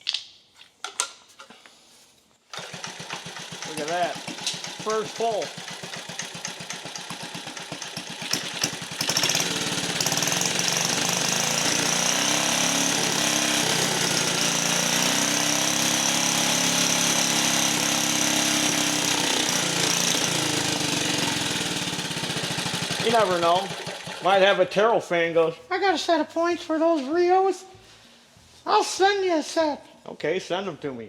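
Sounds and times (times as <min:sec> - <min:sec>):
engine running: 0:02.6 - 0:24.3.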